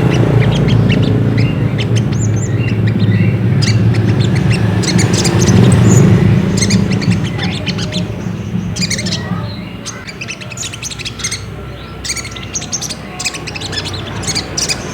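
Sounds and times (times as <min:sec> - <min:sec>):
bird chirping: 0:00.0 - 0:14.9
steady low hum: 0:00.0 - 0:14.9.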